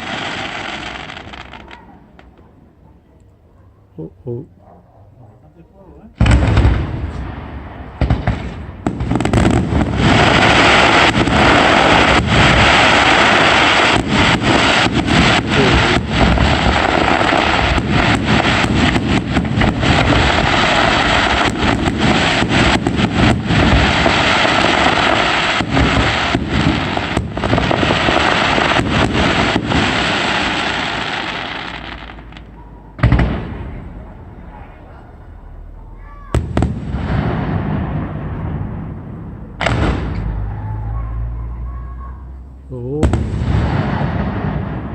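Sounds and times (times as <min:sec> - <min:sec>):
fireworks bangs and crackling: 0:00.0 - 0:02.4, 0:06.0 - 0:41.6, 0:42.9 - 0:44.9.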